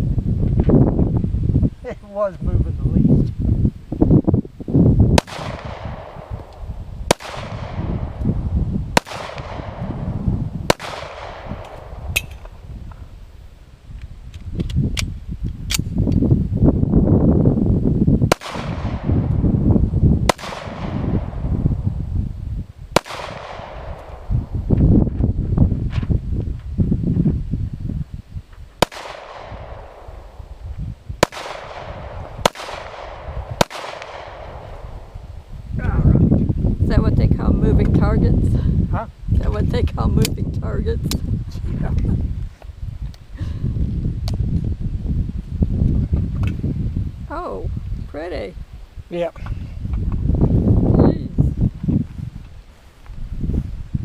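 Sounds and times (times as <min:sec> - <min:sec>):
wind rumble on microphone: 0:00.0 - 0:54.0
loud gunshots with echo: 0:05.2 - 0:06.5, 0:07.1 - 0:08.4, 0:09.0 - 0:12.1, 0:18.3 - 0:19.2, 0:20.3 - 0:21.7, 0:23.0 - 0:24.5, 0:31.2 - 0:35.1
faint sharp gunshot cracks: 0:05.2 - 0:08.2, 0:09.0 - 0:09.9, 0:10.7 - 0:12.5, 0:18.3 - 0:19.1, 0:20.3 - 0:21.3, 0:23.0 - 0:24.3, 0:28.8 - 0:30.1, 0:31.2 - 0:34.8.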